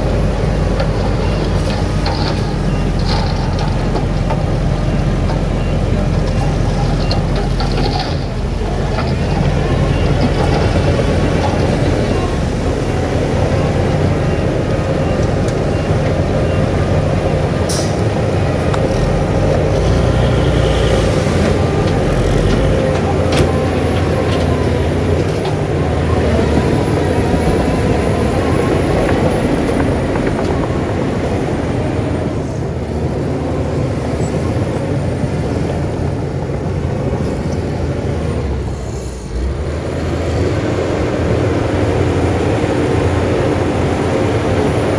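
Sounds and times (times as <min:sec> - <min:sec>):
heavy machinery diesel engines: 0:00.0 - 0:44.9.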